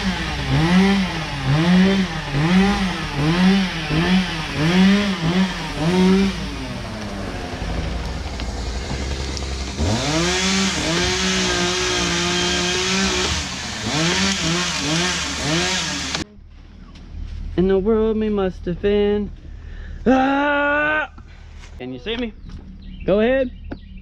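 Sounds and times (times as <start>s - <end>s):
chainsaw revving: 0.0s - 16.3s.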